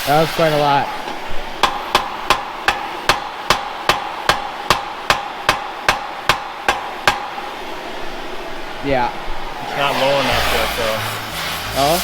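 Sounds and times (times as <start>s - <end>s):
hammering on metal: 1.0s - 7.8s.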